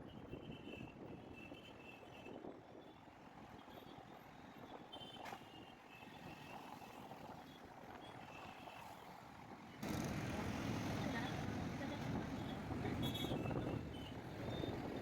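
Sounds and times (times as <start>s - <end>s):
road traffic rumble: 9.2s - 15.0s.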